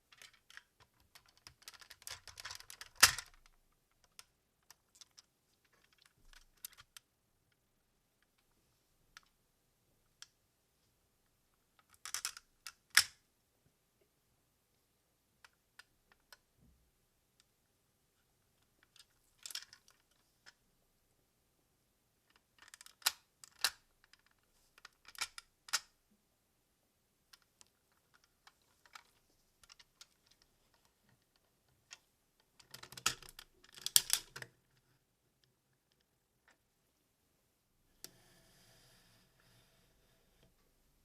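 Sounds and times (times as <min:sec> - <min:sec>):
plastic parts rattling: 0:00.1 - 0:04.2, 0:18.8 - 0:20.2, 0:32.6 - 0:34.5
plastic toy parts clicking together: 0:00.1 - 0:07.0, 0:11.8 - 0:13.2, 0:18.8 - 0:20.1, 0:22.3 - 0:25.9, 0:27.4 - 0:34.5.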